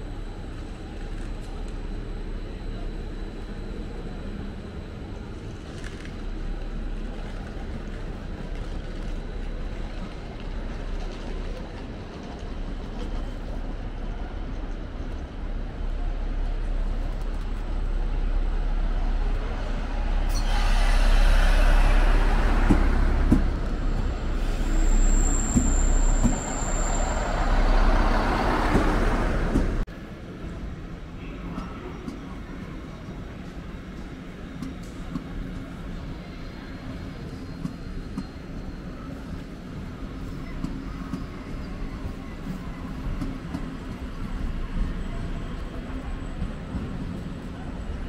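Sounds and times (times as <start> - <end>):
train rolling noise: 0.0 - 48.0
train rumbling: 0.0 - 48.0
high-pitched squeal: 20.2 - 28.4.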